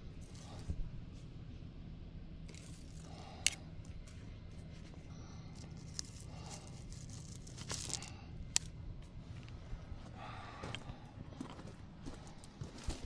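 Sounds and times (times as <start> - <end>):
stems snapping: 2.5 - 3.9, 5.6 - 8.8.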